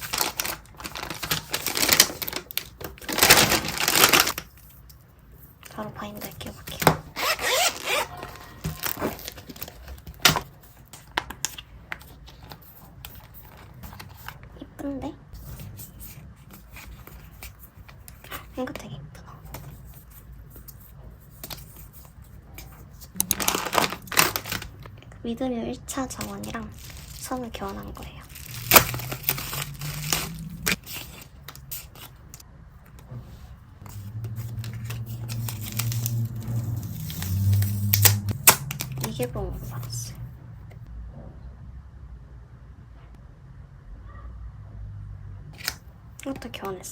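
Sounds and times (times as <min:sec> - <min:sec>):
plastic sleeve crinkling: 0:00.0 - 0:04.8, 0:05.6 - 0:14.4, 0:21.4 - 0:25.0, 0:26.0 - 0:32.4, 0:33.8 - 0:40.0.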